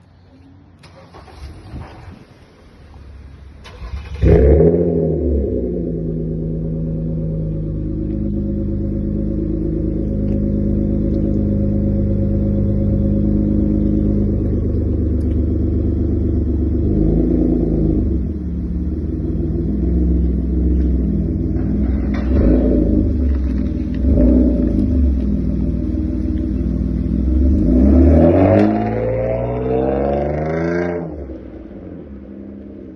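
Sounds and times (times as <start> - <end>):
car engine idling and revving: 0.0 - 32.9
car engine starting: 0.0 - 32.9.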